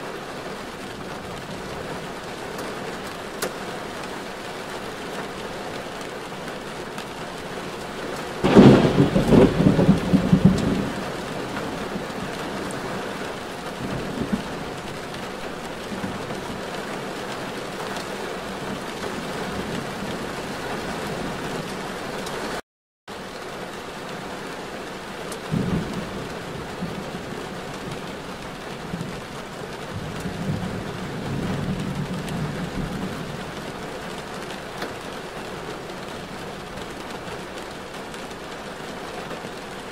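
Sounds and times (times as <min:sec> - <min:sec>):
steady rain: 0:00.0 - 0:39.9
thunder rumble: 0:08.4 - 0:16.7.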